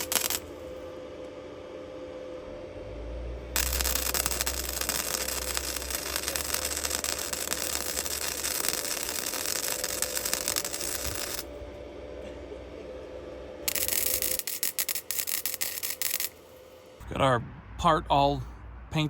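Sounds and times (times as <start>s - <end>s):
electric welding arc crackling: 0.0s - 0.6s, 3.6s - 11.6s, 13.7s - 16.8s.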